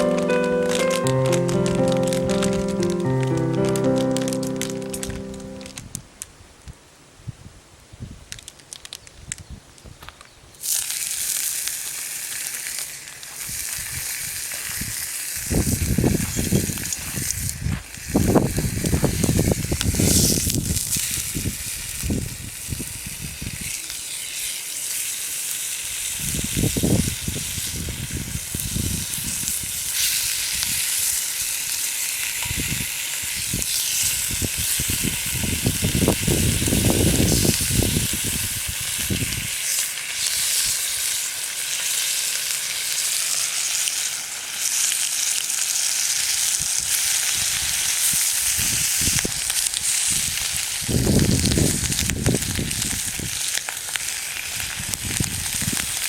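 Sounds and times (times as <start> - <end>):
food sizzling in a pan: 10.6 - 15.4, 20.9 - 56.0.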